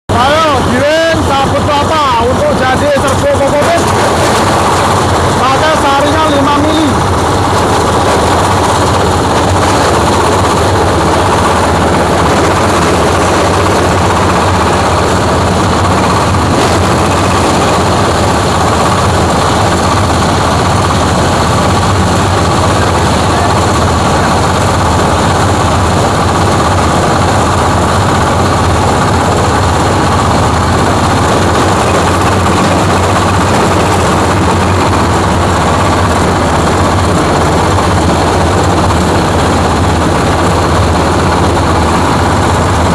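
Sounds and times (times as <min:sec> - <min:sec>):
grinding machine running: 0:00.1 - 0:42.9.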